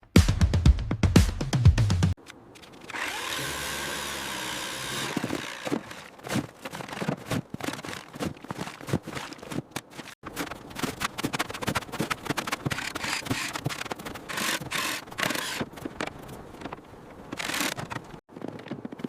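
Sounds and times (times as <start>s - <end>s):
power tool whirring: 2.8s - 6.1s, 14.3s - 15.6s.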